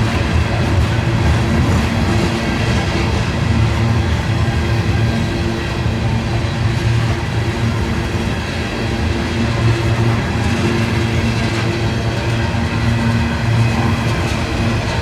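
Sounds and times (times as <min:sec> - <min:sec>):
rail and wheel noise: 0:00.0 - 0:15.0
train engine drone: 0:00.0 - 0:15.0.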